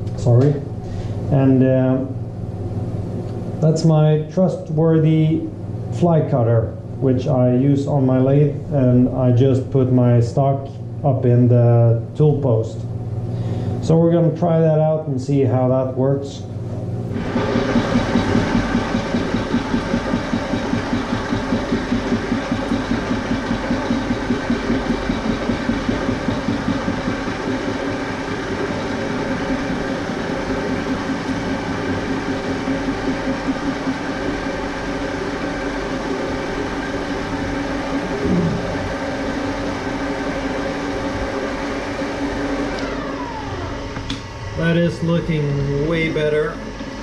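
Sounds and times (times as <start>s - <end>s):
lathe winding down: 16.8s - 47.0s
metal lathe cutting metal: 17.1s - 47.0s.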